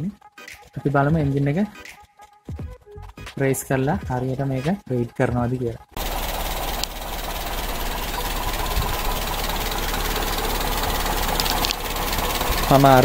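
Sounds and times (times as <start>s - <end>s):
car engine idling: 6.0s - 13.0s.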